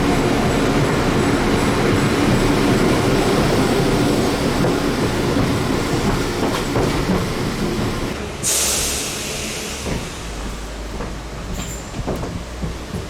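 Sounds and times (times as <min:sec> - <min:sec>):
train rumbling: 0:00.0 - 0:13.0
loud hiss: 0:08.2 - 0:10.4.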